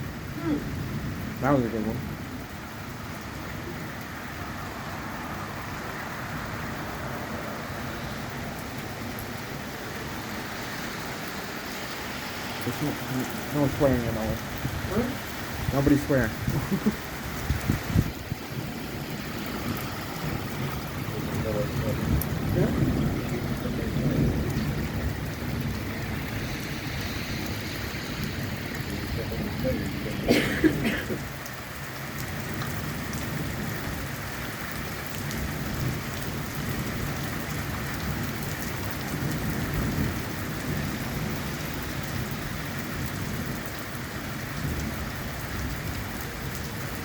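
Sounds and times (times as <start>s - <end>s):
heavy rain pouring: 0.0s - 47.0s
thunder rumbling: 11.0s - 31.5s.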